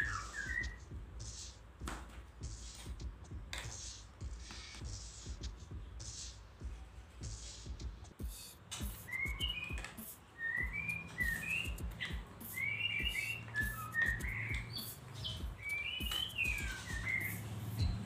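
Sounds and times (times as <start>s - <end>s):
songbird chirping and whistling: 0.0s - 1.6s, 8.2s - 18.0s.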